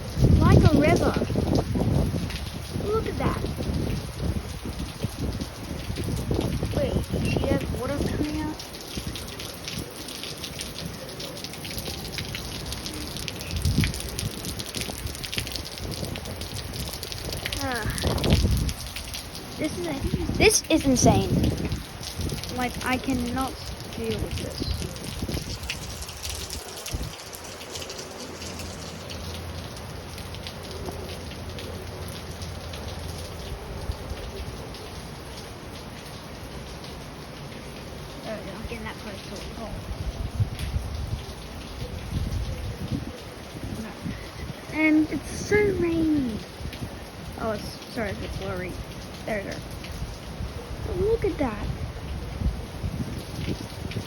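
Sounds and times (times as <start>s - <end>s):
gushing runoff water: 0.0s - 54.0s
raindrops ticking: 0.0s - 54.0s.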